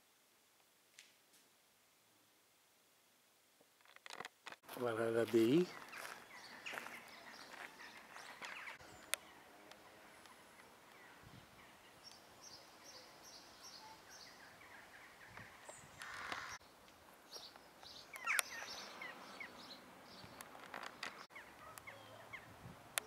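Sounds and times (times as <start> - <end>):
low background hiss: 0.0 - 5.5
small birds chirping: 4.7 - 23.0.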